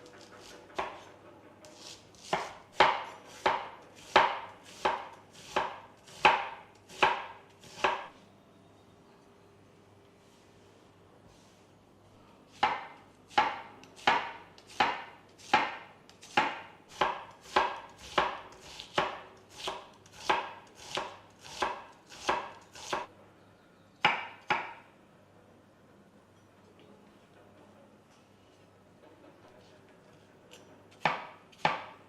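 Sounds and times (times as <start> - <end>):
knife chopping on cutting board: 0.4 - 1.1, 1.7 - 8.1, 12.5 - 23.1, 24.0 - 24.8, 30.9 - 32.0.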